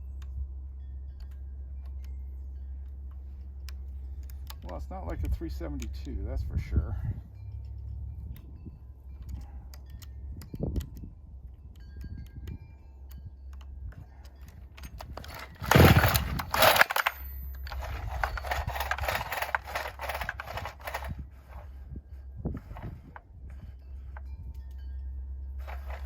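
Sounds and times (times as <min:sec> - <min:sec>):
chainsaw engine running: 0:15.0 - 0:21.7, 0:25.6 - 0:26.0.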